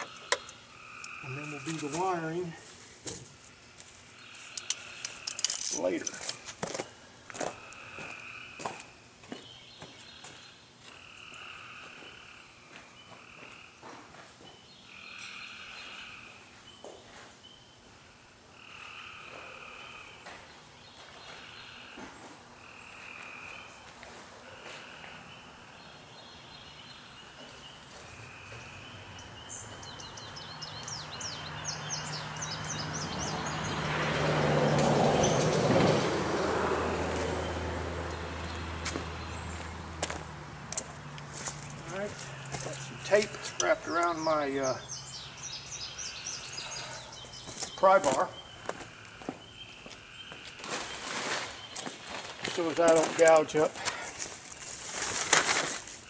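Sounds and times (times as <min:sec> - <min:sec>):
croaking animal calls: 0:00.0 - 0:02.0, 0:10.9 - 0:13.8, 0:18.5 - 0:20.2, 0:21.4 - 0:25.8.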